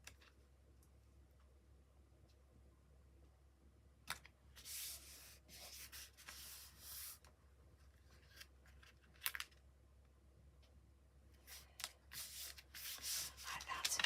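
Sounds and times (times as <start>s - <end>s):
paper rustling on table: 4.6s - 7.3s, 11.4s - 14.0s.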